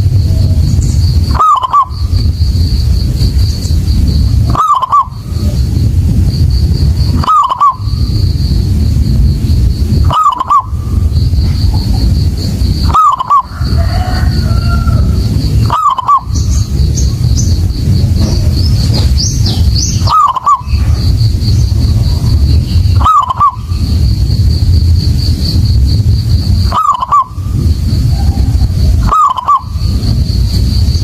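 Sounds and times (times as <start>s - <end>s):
steady low rumble: 0.0s - 31.0s
bird chirping: 0.2s - 31.0s
dove cooing: 1.2s - 2.3s, 4.5s - 5.6s, 7.1s - 8.2s, 10.0s - 12.2s, 12.8s - 17.2s, 18.2s - 20.9s, 21.8s - 24.0s, 26.6s - 30.0s.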